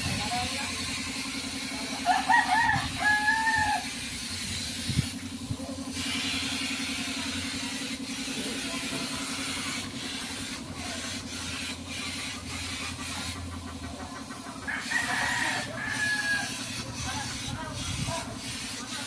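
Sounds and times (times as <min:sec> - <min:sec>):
low pulsing hum: 0:00.0 - 0:14.6
hiss: 0:03.2 - 0:19.0.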